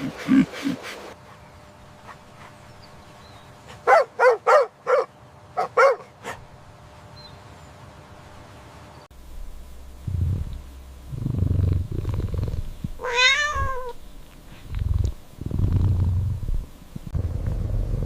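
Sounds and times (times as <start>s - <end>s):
dog yapping: 3.8s - 6.4s.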